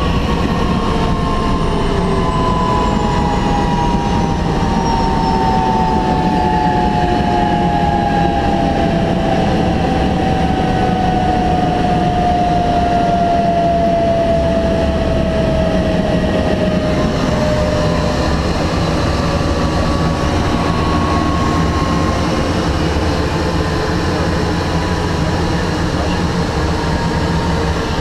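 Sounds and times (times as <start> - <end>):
helicopter rotor and engine drone: 0.0 - 28.0.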